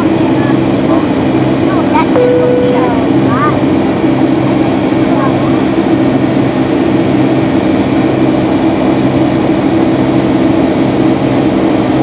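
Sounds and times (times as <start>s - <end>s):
jet engine hum: 0.0s - 12.0s
low steady tones: 2.2s - 3.8s.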